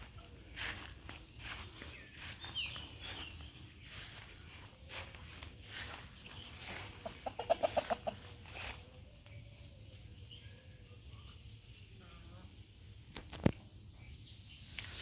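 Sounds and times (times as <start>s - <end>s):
chicken clucking: 4.7s - 11.4s.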